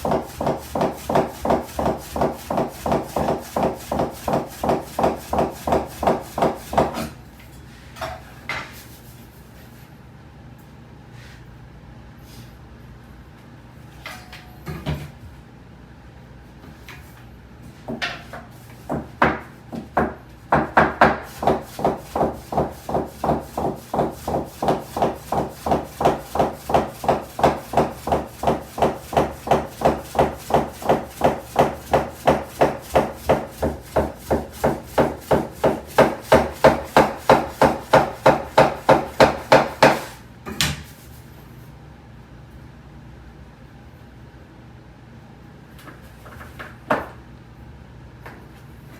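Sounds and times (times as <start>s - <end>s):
knife chopping on wooden board: 0.0s - 7.2s, 17.9s - 40.9s.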